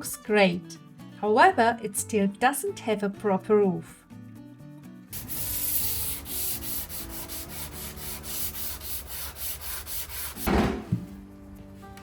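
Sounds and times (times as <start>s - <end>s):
wood being sanded: 5.2s - 10.5s
loud bump: 10.4s - 11.2s.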